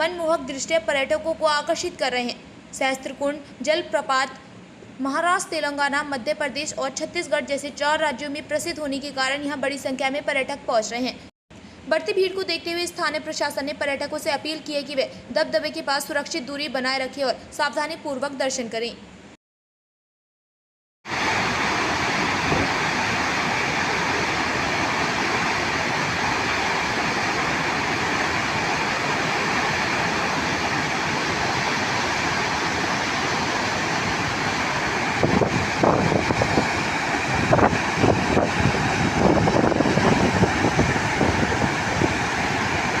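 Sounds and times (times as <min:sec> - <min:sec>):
waterfall rushing: 0:21.1 - 0:43.0.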